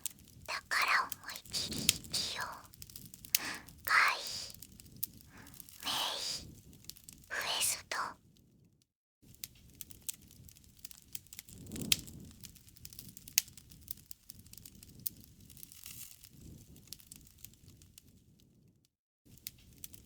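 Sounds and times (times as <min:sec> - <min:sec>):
wood fire crackling: 0:00.0 - 0:03.9, 0:09.4 - 0:17.8.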